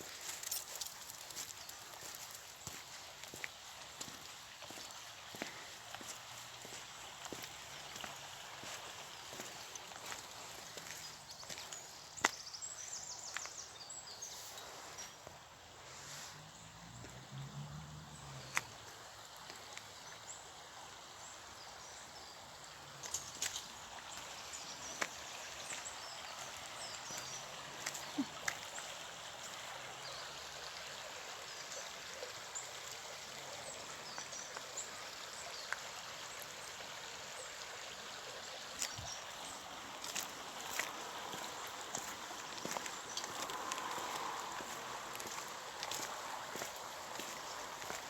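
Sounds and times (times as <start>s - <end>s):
stream rushing: 0.0s - 13.4s, 14.6s - 48.0s.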